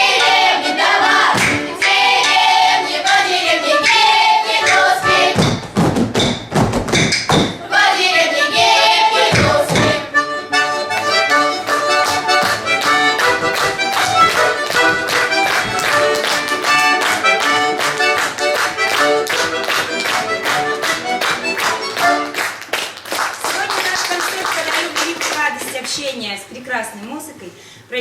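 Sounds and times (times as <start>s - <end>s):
accordion playing lively tune: 0.0s - 5.4s, 7.6s - 22.7s.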